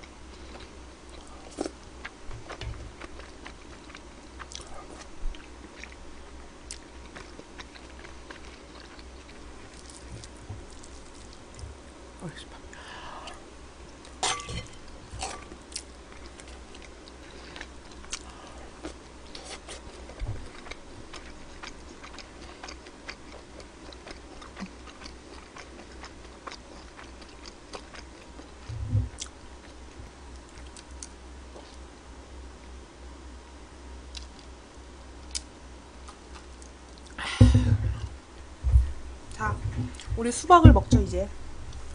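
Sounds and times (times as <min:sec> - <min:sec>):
woman chewing food: 0:00.0 - 0:11.9, 0:13.2 - 0:31.9, 0:35.2 - 0:38.1
dull thumps: 0:37.3 - 0:41.2.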